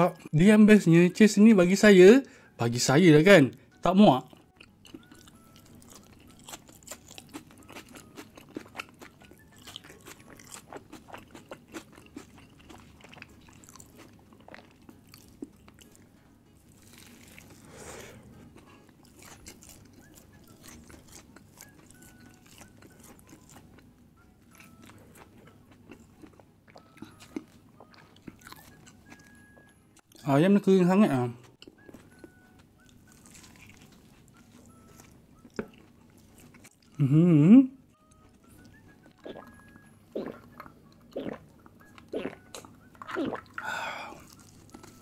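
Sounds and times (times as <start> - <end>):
person chewing crunchy food: 4.2 - 30.2, 31.5 - 37.1, 37.9 - 45.0
wet mouth sounds: 39.2 - 44.9.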